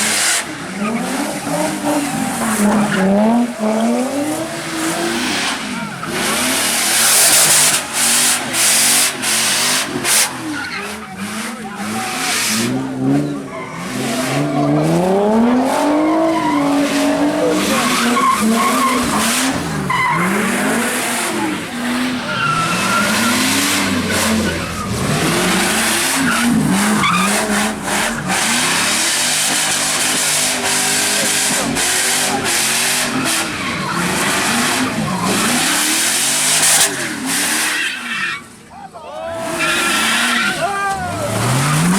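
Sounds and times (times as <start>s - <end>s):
car engine revving: 0.0s - 38.6s, 39.4s - 41.9s
tyres skidding and squealing: 0.0s - 41.9s.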